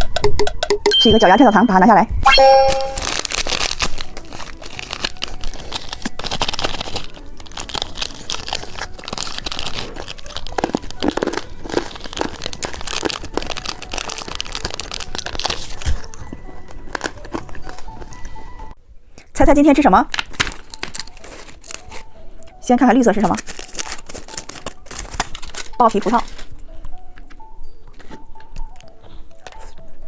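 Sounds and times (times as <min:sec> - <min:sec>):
plastic packaging crinkling: 0:03.0 - 0:18.2, 0:20.1 - 0:26.8.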